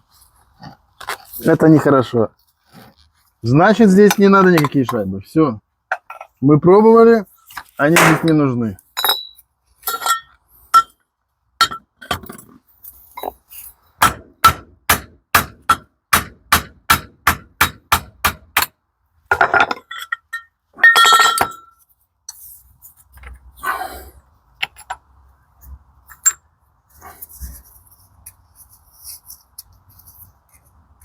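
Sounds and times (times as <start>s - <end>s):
metal parts clattering: 19.3s - 21.8s.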